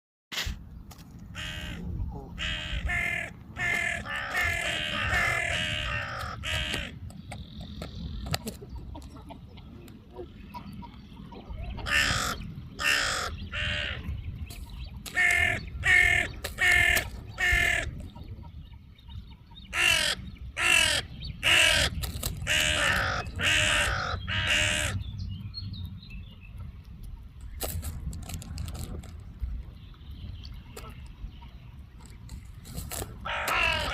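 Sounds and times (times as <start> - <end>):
crow cawing: 1.4 - 1.8, 2.4 - 7.0, 11.8 - 14.0, 19.8 - 21.9, 22.5 - 25.0, 33.2 - 33.9.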